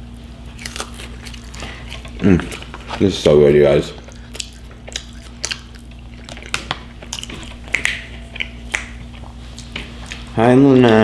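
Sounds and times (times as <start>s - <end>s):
chewing crunchy food: 0.0s - 11.0s.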